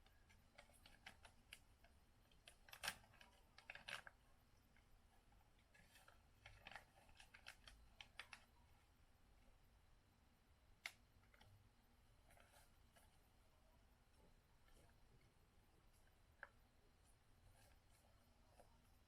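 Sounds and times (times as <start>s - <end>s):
faint clicks and crackles: 0.0s - 9.5s, 10.8s - 19.0s.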